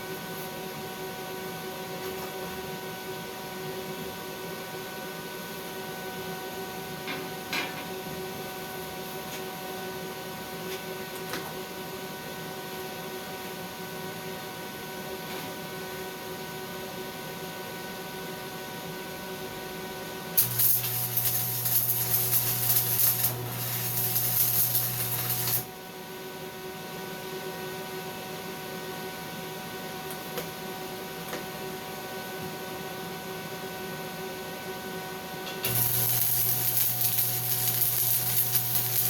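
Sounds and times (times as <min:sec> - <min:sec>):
low electrical buzz: 0:19.4 - 0:27.1, 0:35.6 - 0:39.0
welding arc crackling: 0:20.4 - 0:25.8, 0:35.6 - 0:39.0.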